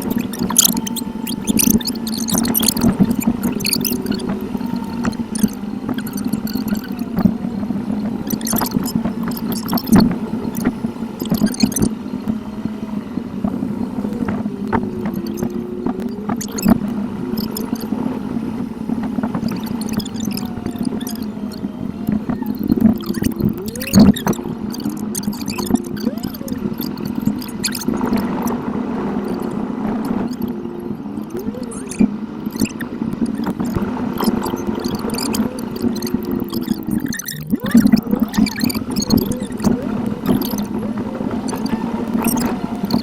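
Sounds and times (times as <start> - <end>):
gliding squeaks: 0.0 - 43.0
rapid clicks: 0.0 - 43.0
sped-up driving noise gurgling rush: 0.0 - 43.0.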